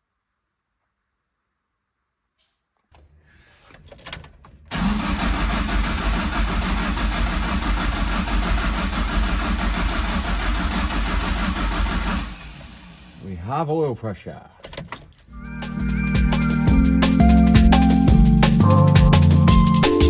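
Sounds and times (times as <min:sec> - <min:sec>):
car engine cranking and starting: 0:04.5 - 0:13.3.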